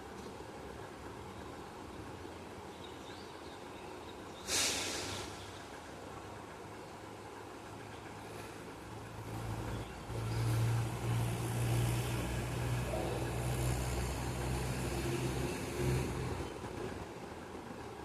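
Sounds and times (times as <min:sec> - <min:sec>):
vehicle engine running: 0:05.5 - 0:18.0.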